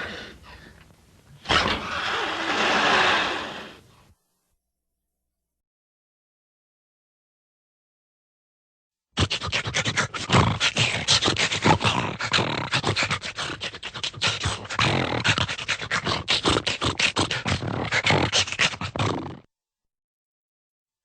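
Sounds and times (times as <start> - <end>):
rough animal-like calls: 1.4 - 3.8.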